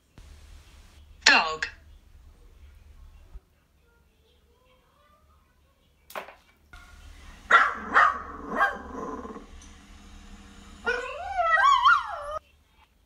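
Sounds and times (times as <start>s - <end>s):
dog barking: 6.8s - 9.5s
dog whining: 10.8s - 12.4s.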